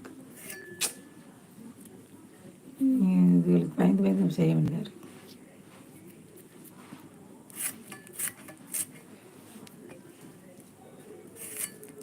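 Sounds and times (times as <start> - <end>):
utensil scraping a dish: 7.6 - 9.0, 11.4 - 12.0.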